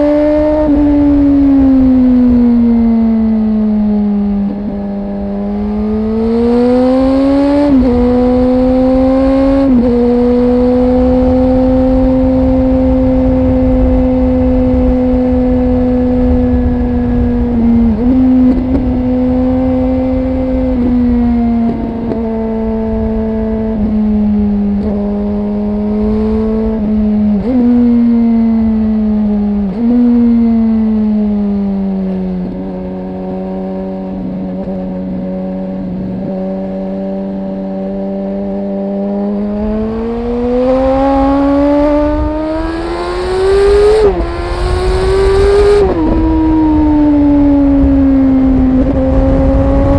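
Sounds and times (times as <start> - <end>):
motorcycle engine revving: 0.0 - 49.9
wind rush: 5.3 - 32.8, 39.4 - 49.9.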